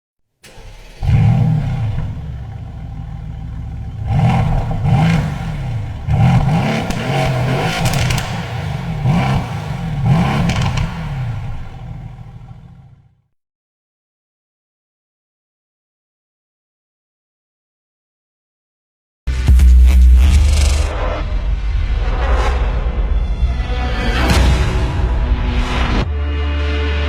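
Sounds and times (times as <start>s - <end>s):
car engine starting and revving: 0.4s - 13.2s.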